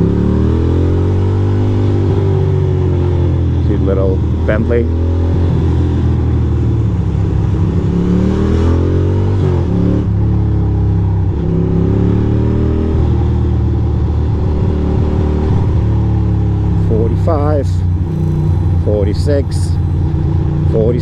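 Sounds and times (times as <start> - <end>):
motorcycle engine changing gears: 11.2 - 21.0.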